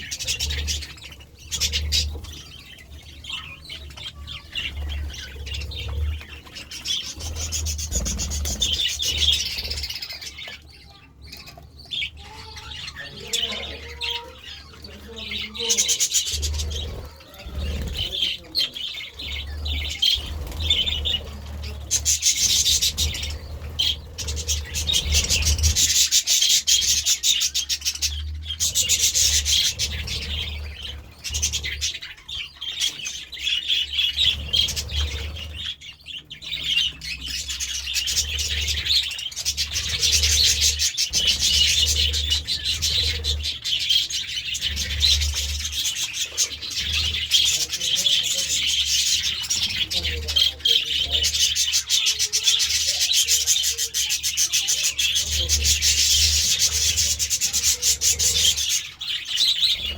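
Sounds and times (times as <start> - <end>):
budgerigars chattering: 0.0 - 59.9.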